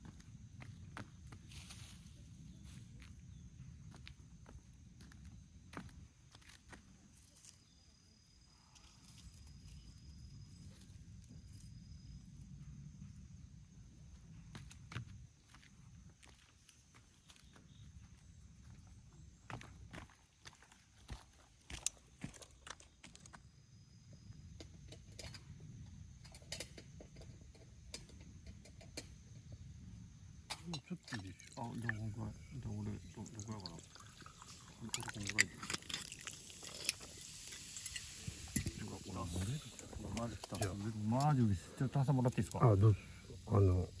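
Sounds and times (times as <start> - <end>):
thin steady high tone: 30.8 - 44.0
wood fire crackling: 33.6 - 43.9.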